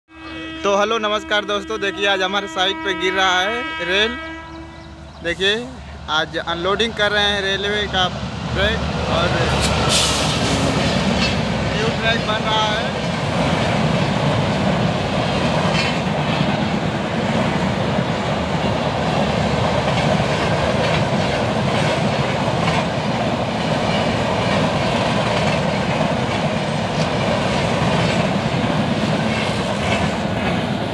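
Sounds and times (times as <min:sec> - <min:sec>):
train wheels rumbling on rails: 0:04.5 - 0:30.9
wheels clacking over rail joints: 0:08.4 - 0:30.9.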